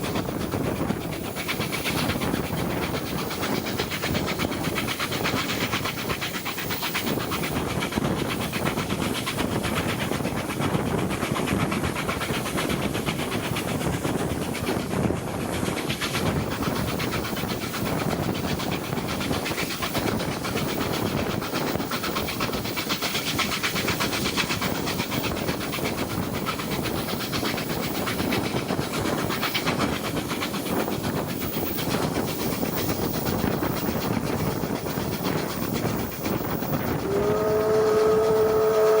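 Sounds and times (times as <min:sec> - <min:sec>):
train rumble and rail noise: 0:00.0 - 0:39.0
steam hiss: 0:15.6 - 0:39.0.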